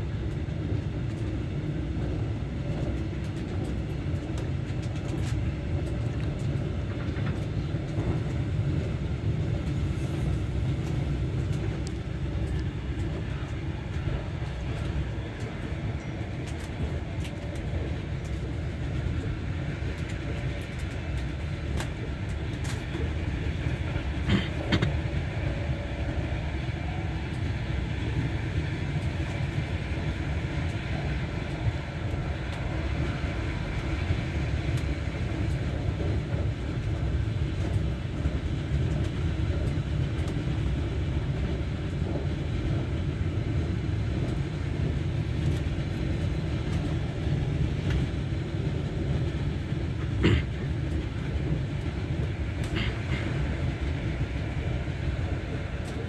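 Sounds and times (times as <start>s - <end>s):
train low rumble: 0.0s - 56.0s
train wheels clicking on rails: 0.0s - 56.0s.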